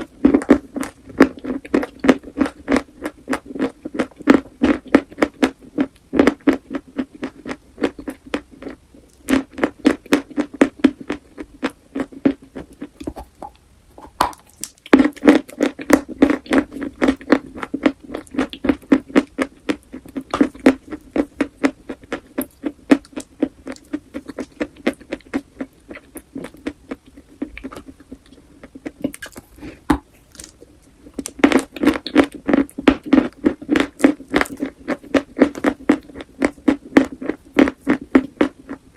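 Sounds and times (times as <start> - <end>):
chewing crunchy chalk: 31.2 - 38.9.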